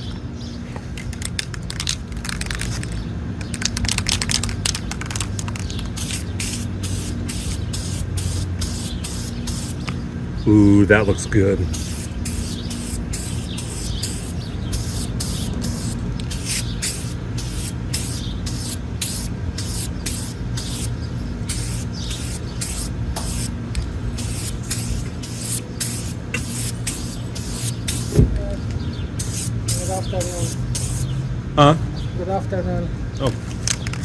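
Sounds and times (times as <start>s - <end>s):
steady low hum: 5.7s - 31.6s
spray paint hissing bursts: 5.8s - 9.9s, 11.7s - 28.2s, 29.2s - 31.2s.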